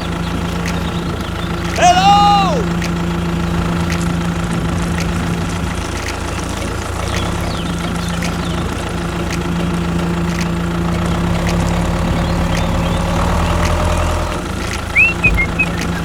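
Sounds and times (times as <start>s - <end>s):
engine idling: 0.0s - 16.0s
short rising whistle: 15.0s - 16.0s.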